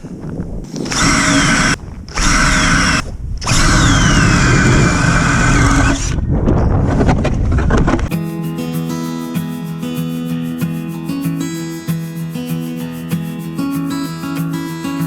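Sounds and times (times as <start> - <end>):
ice auger motor whining: 0.7 - 6.2.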